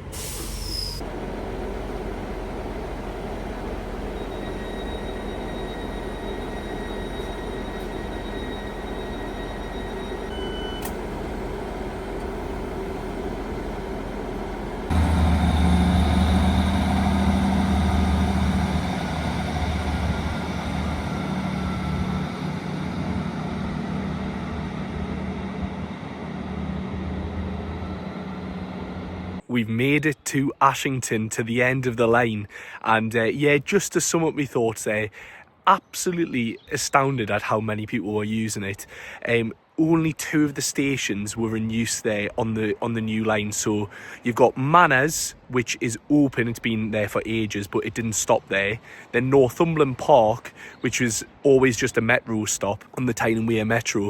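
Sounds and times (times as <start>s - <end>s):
diesel train rumbling: 0.0s - 29.6s, 34.8s - 54.0s
short beep: 4.2s - 11.0s.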